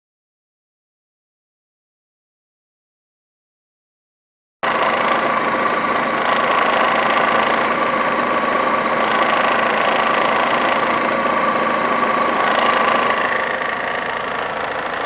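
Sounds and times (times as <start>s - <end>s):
belt tensioner chattering: 4.7s - 15.0s
car engine idling: 4.7s - 15.0s.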